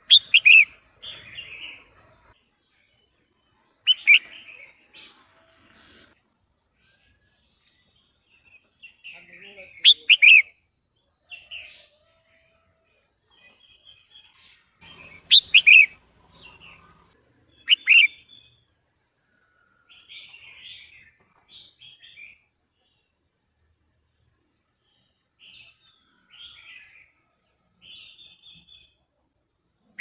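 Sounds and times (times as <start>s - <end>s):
bird calling sharp notes: 0.0s - 0.7s, 9.9s - 10.5s, 15.2s - 16.0s, 17.7s - 18.2s
soft bird chirps: 0.0s - 10.5s, 13.3s - 23.2s.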